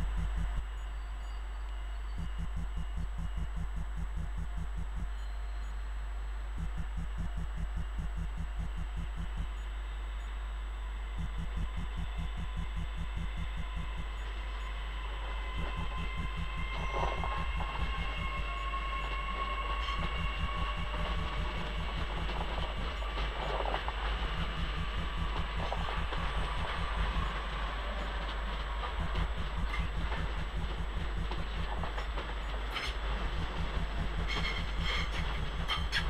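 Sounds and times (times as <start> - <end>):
electric train whine and rumble: 0.0 - 36.0
steady low hum: 0.0 - 36.0
train wheels rattling over rails: 19.8 - 36.0.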